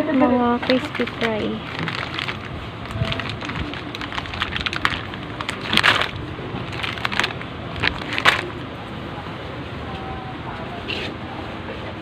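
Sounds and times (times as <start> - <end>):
crinkling packaging being handled: 0.6 - 8.6.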